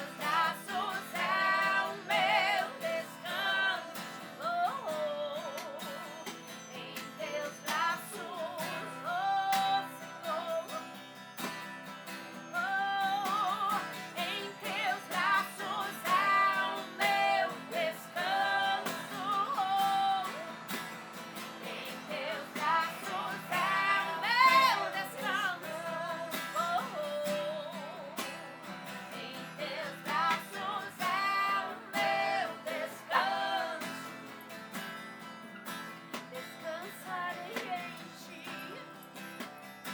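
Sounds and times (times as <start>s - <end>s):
person singing worship song: 0.0s - 10.8s, 12.6s - 28.3s, 29.1s - 34.1s
strummed acoustic guitar: 0.0s - 39.9s.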